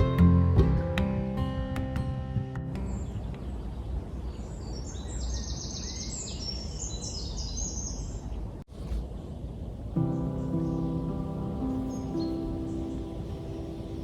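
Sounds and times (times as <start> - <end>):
small bird singing trills: 2.8 - 8.3, 10.0 - 14.0
low background rumble: 8.5 - 14.0.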